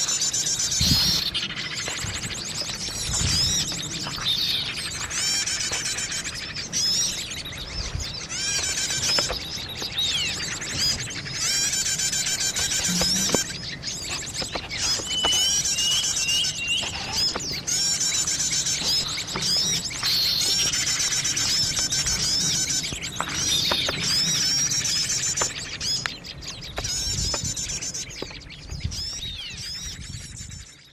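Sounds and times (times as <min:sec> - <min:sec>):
birds chirping and trilling: 0:00.0 - 0:30.9.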